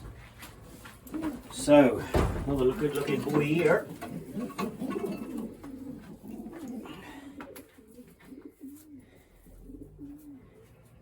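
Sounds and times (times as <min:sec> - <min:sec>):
pigeons cooing: 0:02.8 - 0:11.0.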